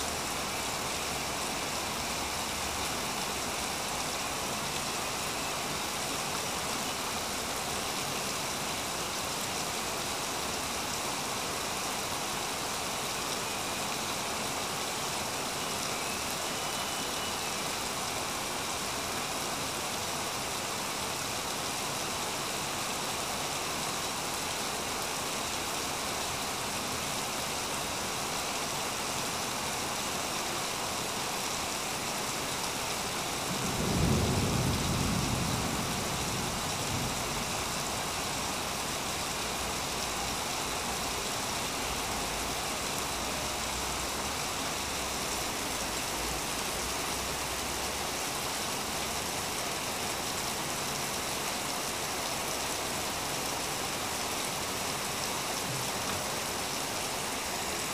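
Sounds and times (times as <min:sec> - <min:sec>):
steady rain falling: 0:00.0 - 0:57.9
low rumble of thunder: 0:33.4 - 0:38.2.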